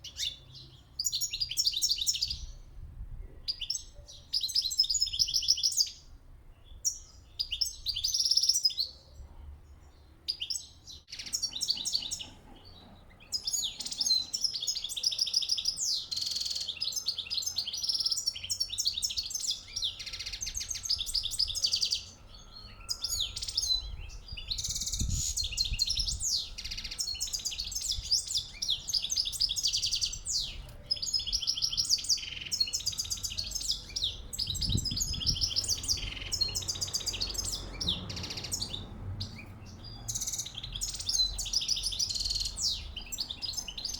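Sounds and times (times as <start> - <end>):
finches twittering and chirping: 11.1 - 43.9.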